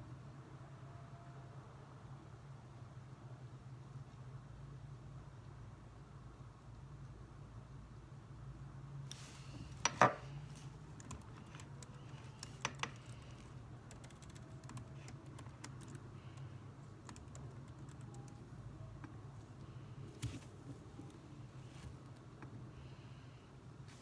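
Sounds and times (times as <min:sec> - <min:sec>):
low steady hum: 0:00.0 - 0:24.0
typing on computer keyboard: 0:10.9 - 0:18.4.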